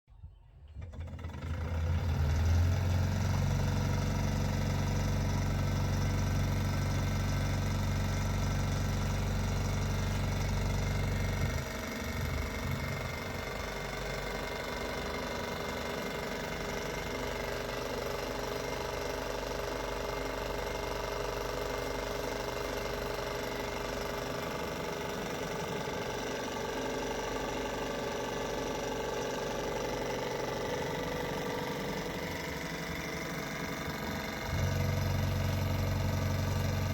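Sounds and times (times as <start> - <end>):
engine generator mechanical whir: 0.2 - 36.9
deep hum: 30.0 - 36.9.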